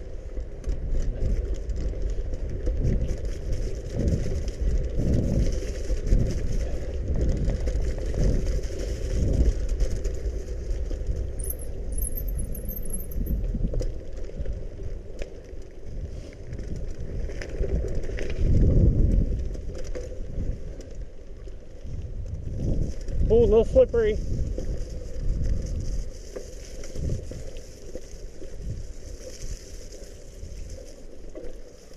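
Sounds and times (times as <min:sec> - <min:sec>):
bike rattling: 0:00.0 - 0:31.9
bike tyres on mud: 0:00.0 - 0:31.9
wind rumble on microphone: 0:00.0 - 0:31.9.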